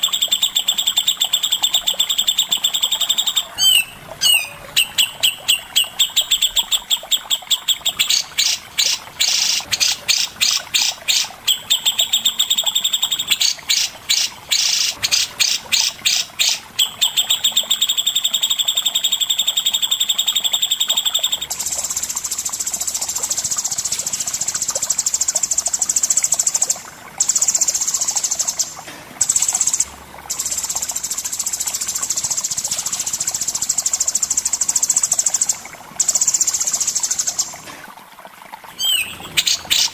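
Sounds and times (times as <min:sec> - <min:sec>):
birdsong with chattering trills: 0:00.0 - 0:37.6, 0:38.7 - 0:39.9.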